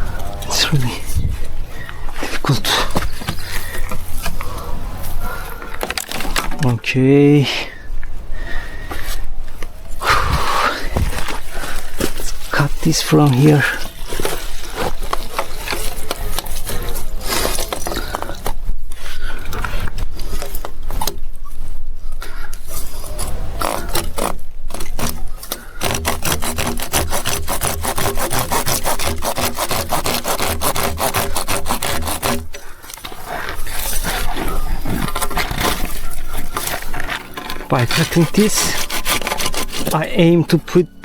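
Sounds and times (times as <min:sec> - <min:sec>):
saw cutting plastic pipe: 0:10.2 - 0:18.5, 0:22.7 - 0:40.9.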